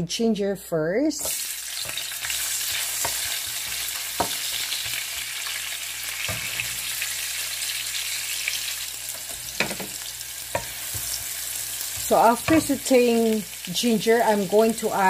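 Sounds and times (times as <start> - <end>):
ginger sizzling in hot oil: 1.2 - 15.0
wooden spatula knocking pan: 9.6 - 11.2, 12.0 - 12.8.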